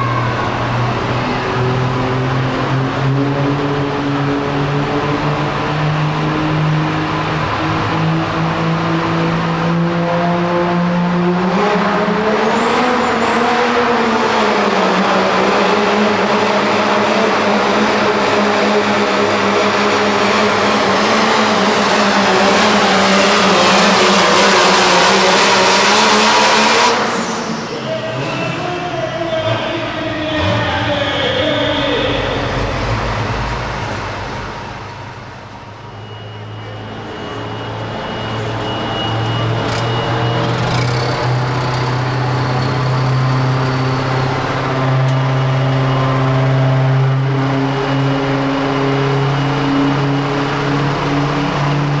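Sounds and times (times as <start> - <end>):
diesel truck engine roaring: 0.0 - 52.0
high rising whistle: 34.6 - 46.9.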